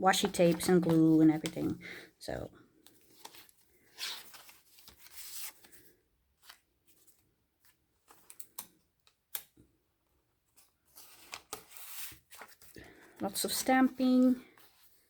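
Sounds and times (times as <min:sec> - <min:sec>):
paper rustling: 0:00.1 - 0:01.6, 0:02.9 - 0:08.4, 0:10.5 - 0:15.0.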